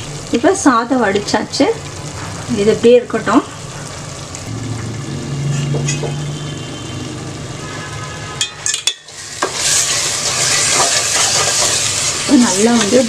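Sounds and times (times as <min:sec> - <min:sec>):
gravy sizzling in a pan: 0:00.0 - 0:13.0.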